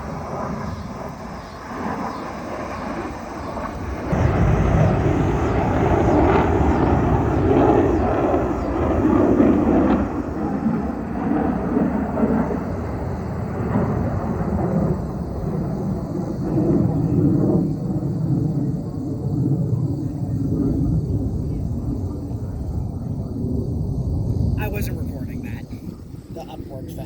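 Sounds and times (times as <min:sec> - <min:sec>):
jets passing over: 0:24.6 - 0:27.0.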